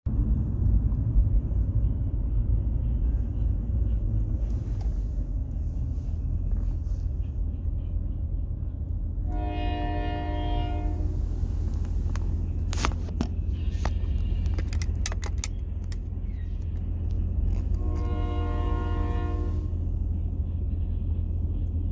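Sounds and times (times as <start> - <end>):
train rumbling: 0.1 - 21.9
train horn: 9.2 - 11.6, 17.6 - 20.0
sharp clicks: 13.2 - 17.8.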